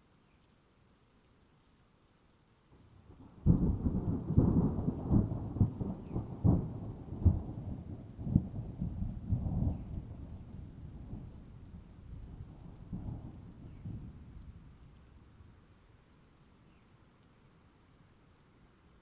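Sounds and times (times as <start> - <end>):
rain: 0.0 - 19.0
thunder rumbling: 3.4 - 14.6.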